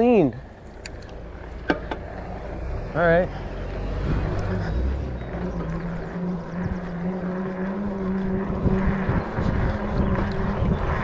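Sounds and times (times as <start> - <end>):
dirt bike engine running: 4.0 - 11.0.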